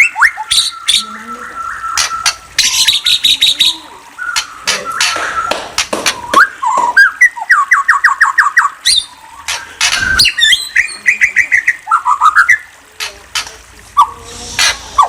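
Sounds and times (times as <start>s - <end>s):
bird singing rapid whistles and trills: 0.0s - 12.7s.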